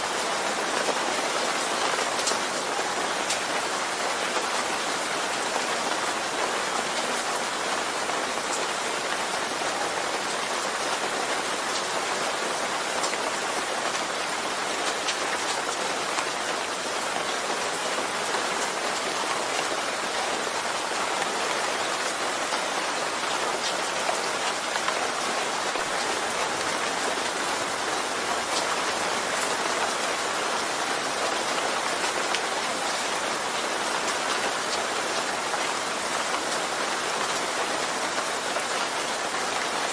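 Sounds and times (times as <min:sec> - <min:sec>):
steady rain falling: 0:00.0 - 0:39.9
sharp raindrop ticks: 0:01.7 - 0:02.6.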